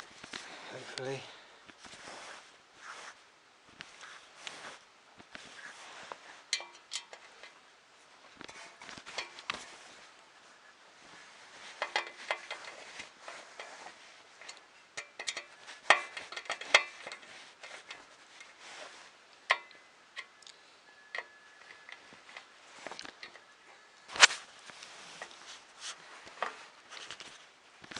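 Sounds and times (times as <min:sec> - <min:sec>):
clicks and taps of parts handled: 0:14.4 - 0:18.5.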